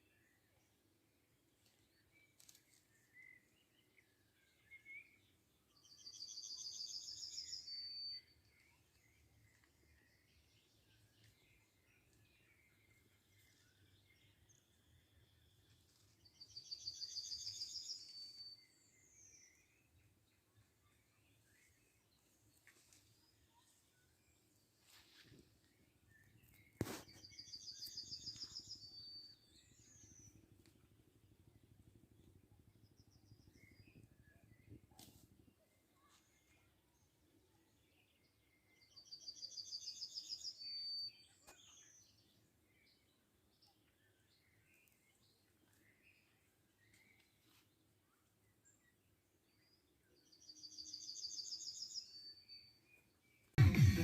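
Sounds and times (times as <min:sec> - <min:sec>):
faint bird chirps: 0:01.6 - 0:30.4.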